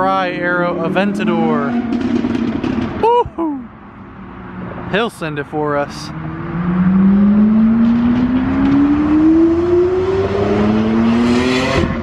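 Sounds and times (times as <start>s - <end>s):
car engine revving hard: 0.4s - 3.0s, 6.1s - 12.0s.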